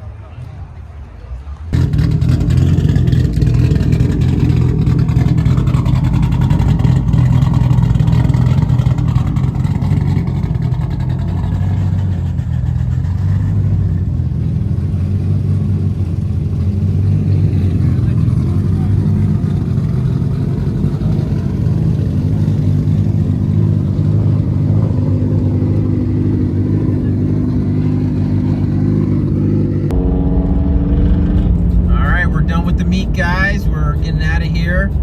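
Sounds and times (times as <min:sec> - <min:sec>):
car engine running loudly: 0:01.6 - 0:35.0.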